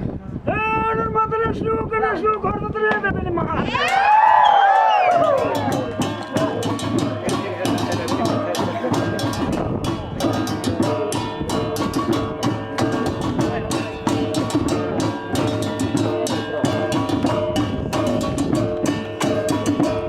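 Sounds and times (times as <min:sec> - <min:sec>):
fast drum beat: 0:05.0 - 0:20.0.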